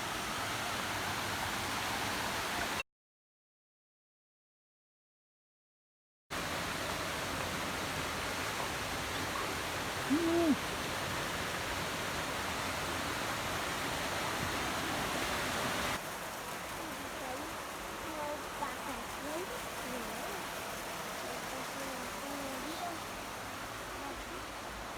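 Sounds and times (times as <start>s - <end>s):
waterfall rushing: 6.4s - 24.9s
hoot-like call: 9.4s - 10.6s.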